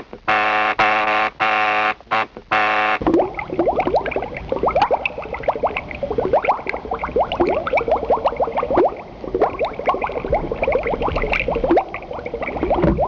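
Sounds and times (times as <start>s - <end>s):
liquid bubbling: 3.0s - 13.0s.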